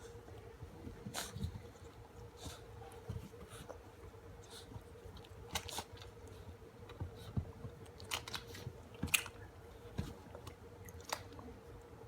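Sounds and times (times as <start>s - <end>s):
faint steady hum: 0.0s - 12.0s
puppies chewing and smacking: 0.0s - 12.0s.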